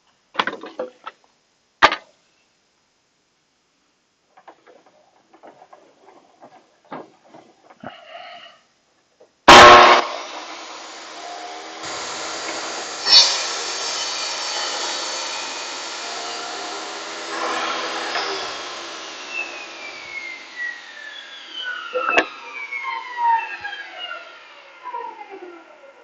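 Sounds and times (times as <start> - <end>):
power tool motor whining: 9.5 - 25.9.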